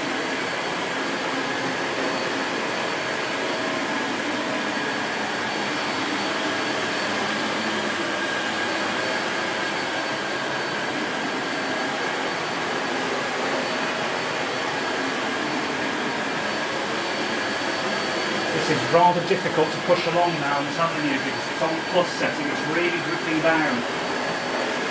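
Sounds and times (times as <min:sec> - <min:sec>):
vacuum cleaner running on carpet: 0:00.0 - 0:24.9.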